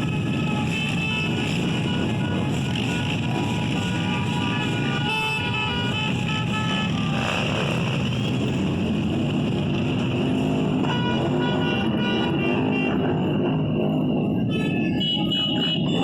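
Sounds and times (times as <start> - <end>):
music playing: 0.0 - 16.0
motorcycles riding past: 6.2 - 10.1.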